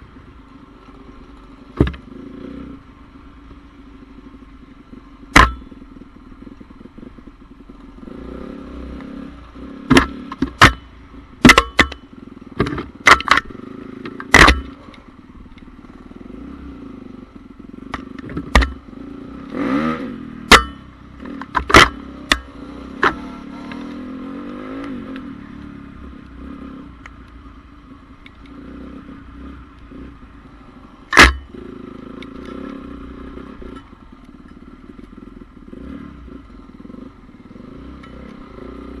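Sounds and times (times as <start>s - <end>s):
motorbike passing: 0.0s - 39.0s
sharp knocks: 5.3s - 5.7s, 20.5s - 20.9s.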